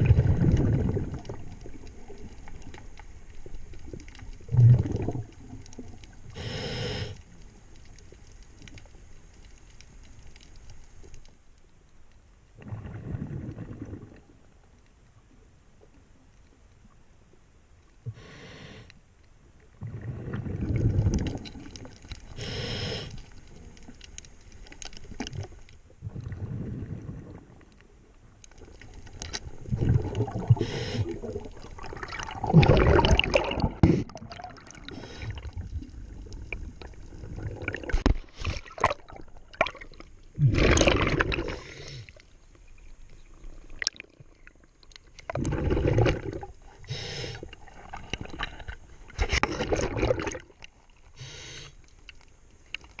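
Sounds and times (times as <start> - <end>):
underwater exhaled bubbles gurgling: 0.0 - 9.0, 12.6 - 14.6, 19.6 - 24.1, 24.7 - 27.9, 28.5 - 51.1.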